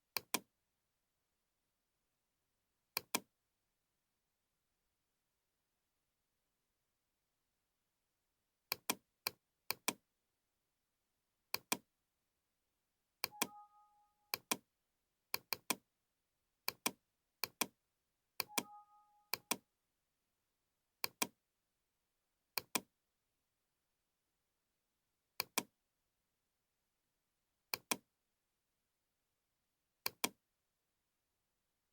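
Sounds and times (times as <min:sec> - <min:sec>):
computer mouse clicks: 0:00.2 - 0:00.5, 0:03.0 - 0:03.3, 0:08.7 - 0:10.0, 0:11.5 - 0:11.9, 0:13.2 - 0:13.6, 0:14.3 - 0:14.6, 0:15.4 - 0:15.8, 0:16.7 - 0:17.7, 0:18.4 - 0:19.6, 0:21.0 - 0:21.4, 0:22.6 - 0:22.9, 0:25.4 - 0:25.7, 0:27.7 - 0:28.0, 0:30.1 - 0:30.4
two-note computer alert tone: 0:13.3 - 0:14.4, 0:18.5 - 0:19.5.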